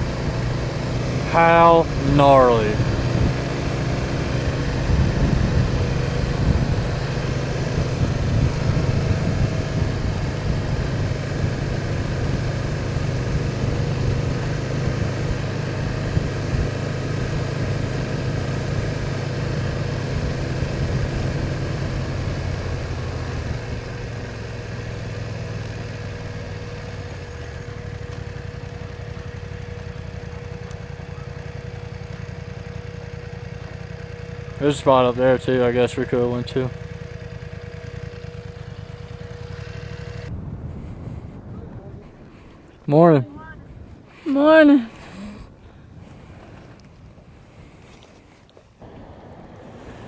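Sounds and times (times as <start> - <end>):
motorcycle engine running: 0.0 - 47.9, 48.8 - 50.0
wind noise: 2.8 - 3.6, 4.4 - 17.9, 40.3 - 48.0.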